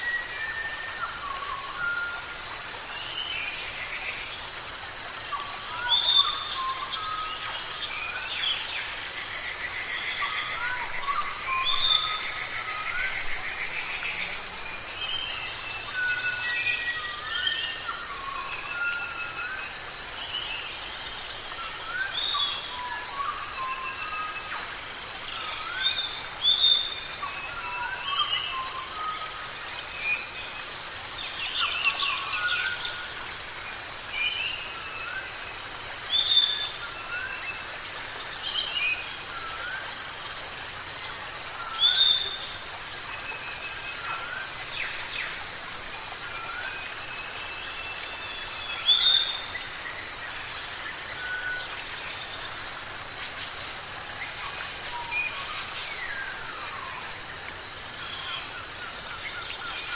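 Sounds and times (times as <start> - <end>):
background hiss: 0.0 - 59.9.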